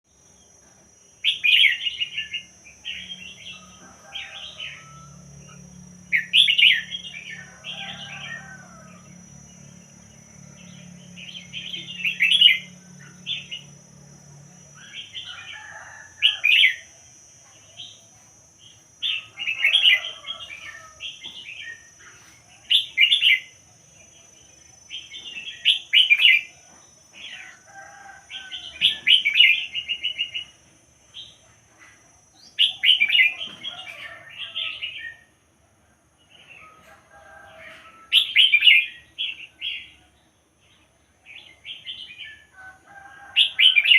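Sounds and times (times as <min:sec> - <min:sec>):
bulbul singing: 0:01.2 - 0:18.0.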